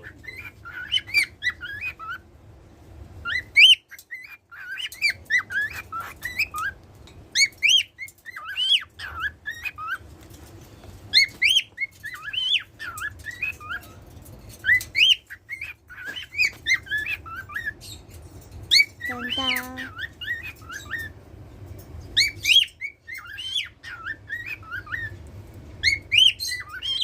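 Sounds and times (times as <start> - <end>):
cockatiel whistling: 0.0 - 2.2, 3.2 - 6.8, 22.2 - 25.2, 25.8 - 27.0.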